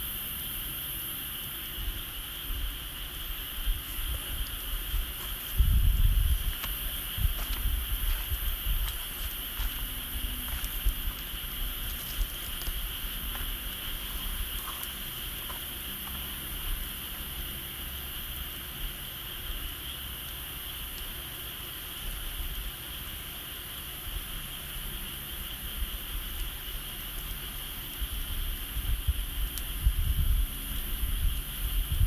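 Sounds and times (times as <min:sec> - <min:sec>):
chorus of insects: 0:00.0 - 0:32.0
faint ticks and crackles: 0:00.0 - 0:32.0
wind rumble on microphone: 0:01.7 - 0:18.1, 0:25.4 - 0:32.0.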